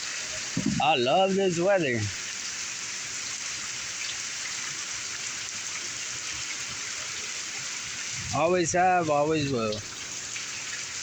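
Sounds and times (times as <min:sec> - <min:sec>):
heavy rain pouring: 0:00.0 - 0:02.2, 0:07.8 - 0:11.0.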